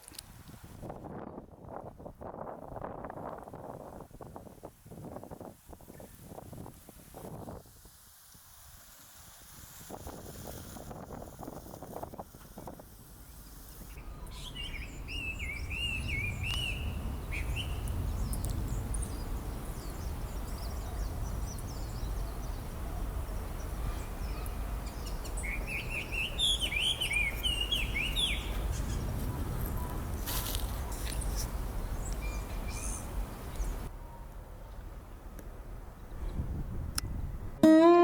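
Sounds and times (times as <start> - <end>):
songbird chirping and warbling: 13.9 - 33.9.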